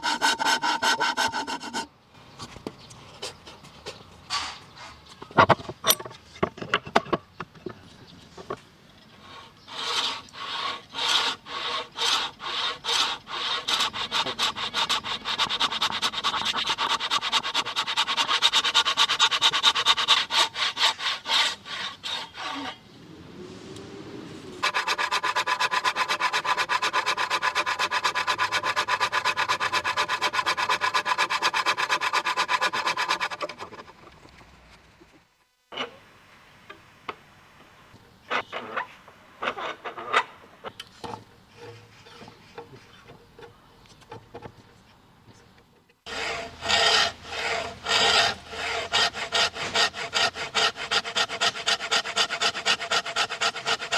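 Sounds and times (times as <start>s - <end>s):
hand tool rubbing wood: 0.0s - 1.9s, 9.2s - 22.8s, 24.6s - 34.1s, 46.1s - 53.9s.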